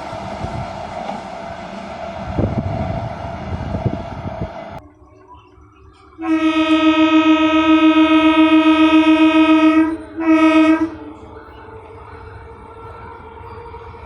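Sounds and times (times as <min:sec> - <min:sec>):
rumble of passing train: 0:00.0 - 0:14.0
train horn blasts: 0:06.2 - 0:11.2.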